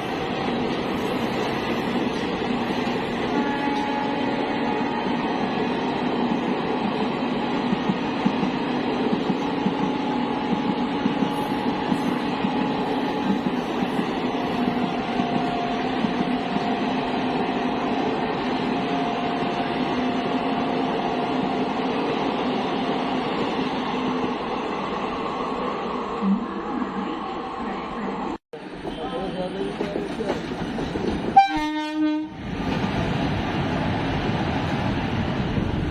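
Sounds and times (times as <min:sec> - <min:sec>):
train wheels rumbling and clattering: 0:05.5 - 0:20.4, 0:28.6 - 0:31.8, 0:32.4 - 0:35.9.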